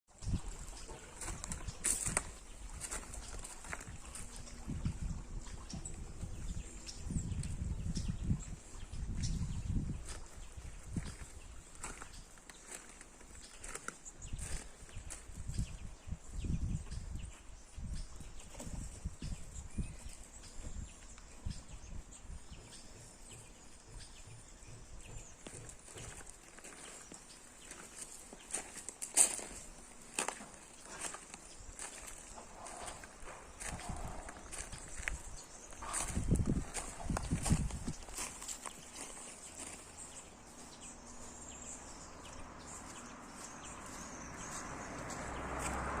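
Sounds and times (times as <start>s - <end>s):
birds chirping: 0.1s - 46.0s
soft low thumps and rustles: 31.7s - 40.9s.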